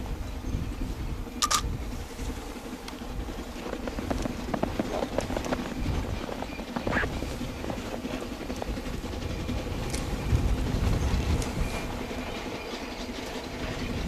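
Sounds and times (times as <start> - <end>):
low train rumble: 0.0 - 14.0
train wheels clicking over rail joints: 2.8 - 14.0.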